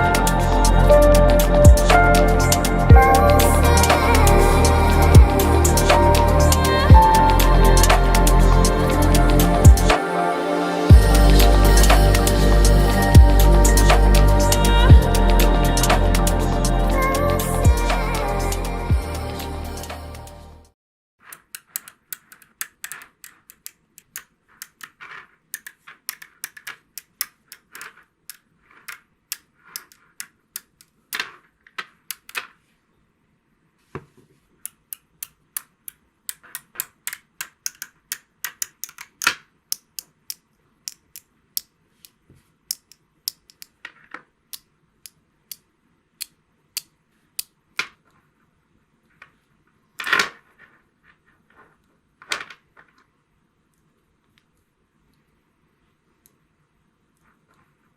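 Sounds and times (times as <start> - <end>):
sharp irregular clicks and taps: 21.3 - 32.6, 34.6 - 43.9, 44.5 - 48.0.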